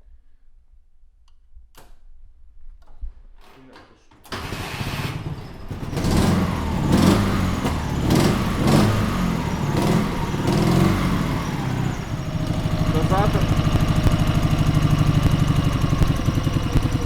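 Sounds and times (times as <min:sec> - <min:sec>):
motorcycle engine revving and idling: 0:04.4 - 0:17.0.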